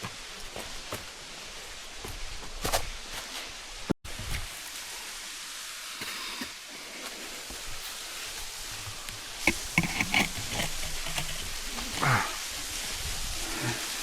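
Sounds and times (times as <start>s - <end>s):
falling water rushing: 4.6s - 14.0s.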